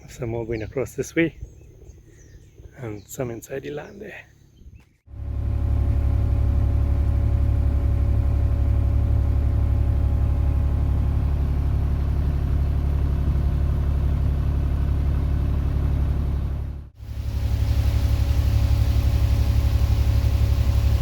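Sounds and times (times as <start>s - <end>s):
excavator engine droning: 5.1s - 21.0s.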